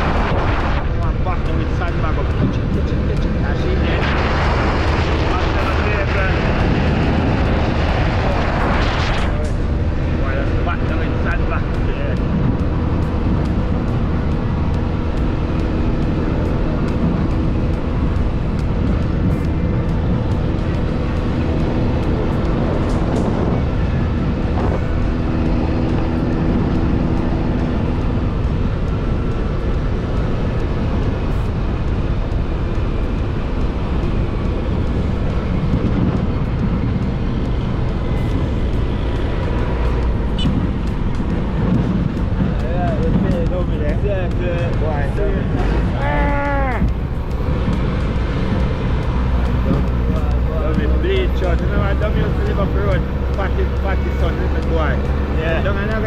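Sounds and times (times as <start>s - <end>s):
car engine and road rumble: 0.0s - 56.0s
low engine hum: 0.0s - 56.0s.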